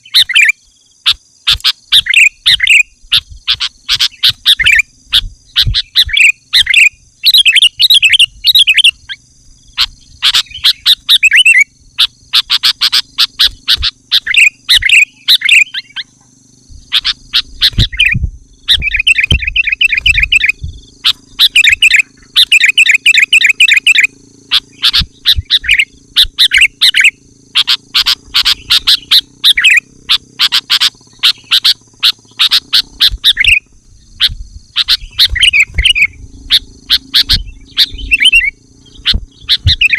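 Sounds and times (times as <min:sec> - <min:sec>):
bird singing chattering phrases: 0:00.0 - 0:39.9.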